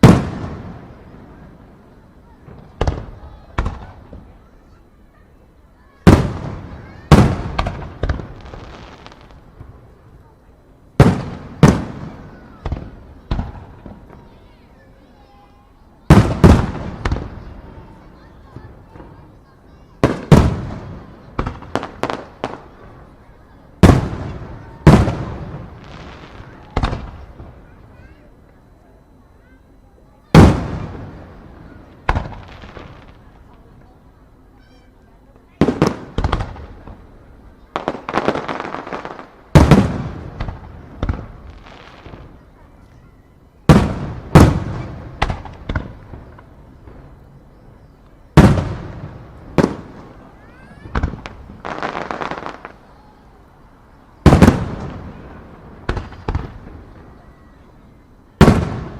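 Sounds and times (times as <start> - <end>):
heavy echoing booms: 0.0 - 4.4, 5.9 - 9.9, 11.0 - 14.2, 16.0 - 19.3, 20.0 - 28.0, 30.2 - 33.7, 35.6 - 42.6, 43.6 - 47.6, 48.2 - 52.7, 54.2 - 57.3, 58.4 - 58.9
faint crackle: 6.6 - 16.0, 16.6 - 58.9.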